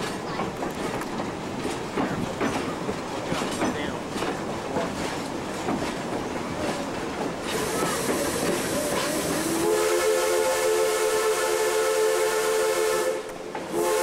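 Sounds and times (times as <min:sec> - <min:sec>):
wheels clanking and clicking: 0:00.0 - 0:09.4
steam train rumbling on rails: 0:00.0 - 0:14.0.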